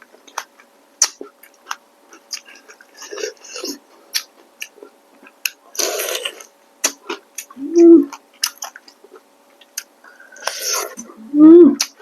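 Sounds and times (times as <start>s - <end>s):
wet chewing: 0.2s - 11.1s
slurping noodles: 5.8s - 6.5s, 10.2s - 11.1s.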